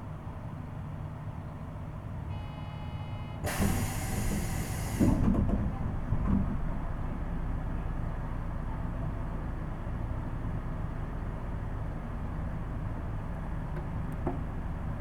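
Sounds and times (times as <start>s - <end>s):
train low hum: 0.0s - 15.0s
burst of air hiss: 3.5s - 5.2s.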